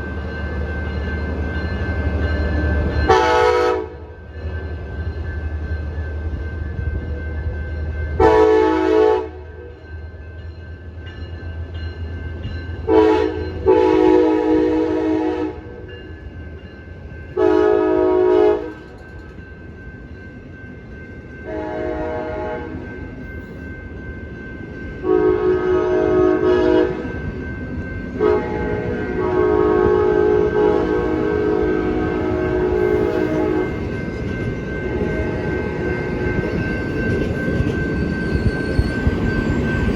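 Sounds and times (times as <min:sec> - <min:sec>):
train rumble: 0:00.0 - 0:39.9
locomotive air horn blasts: 0:03.1 - 0:04.0, 0:08.2 - 0:09.4, 0:12.9 - 0:15.7, 0:17.4 - 0:18.7, 0:21.5 - 0:22.8, 0:25.0 - 0:27.0, 0:28.2 - 0:33.7.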